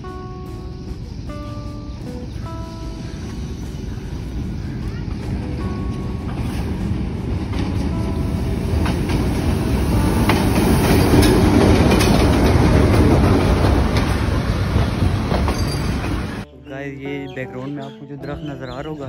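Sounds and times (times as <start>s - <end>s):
diesel locomotive engine rumble: 0.0s - 17.5s
train wheels clicking over rail joints: 3.2s - 16.4s.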